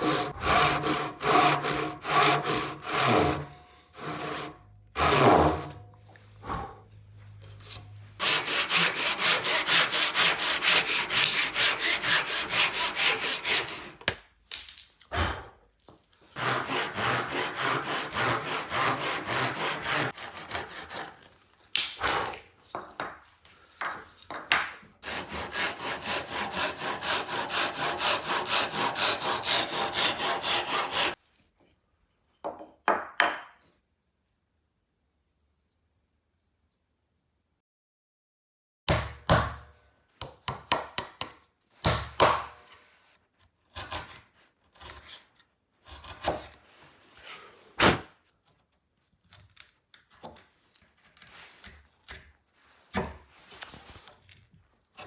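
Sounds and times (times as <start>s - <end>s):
hand saw cutting wood: 0.0s - 5.9s, 7.4s - 14.2s, 16.3s - 22.5s, 25.0s - 31.2s, 43.7s - 48.1s
knocks and handling sounds: 22.5s - 25.0s.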